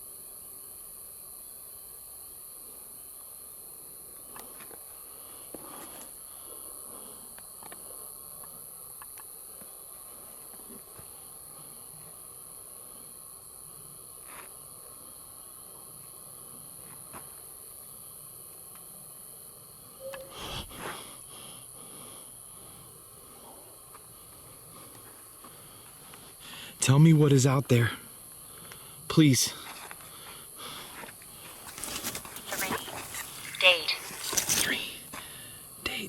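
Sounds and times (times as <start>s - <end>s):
night insects chirping: 0.0s - 36.0s
faint clicks and rustles: 30.9s - 35.2s.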